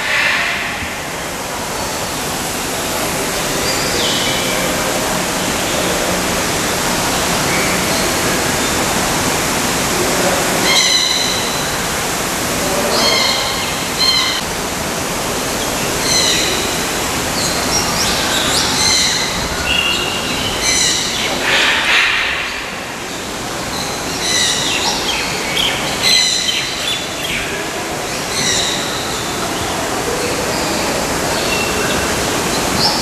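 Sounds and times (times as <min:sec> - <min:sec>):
steady rushing noise: 0:00.0 - 0:17.8.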